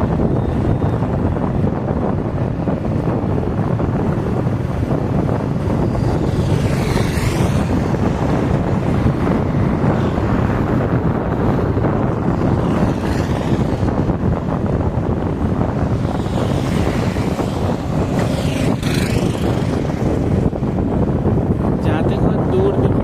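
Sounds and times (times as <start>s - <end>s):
road and engine noise: 0.0s - 23.0s
wind buffeting microphone: 0.0s - 23.0s
vehicle passing with hiss: 16.2s - 20.2s.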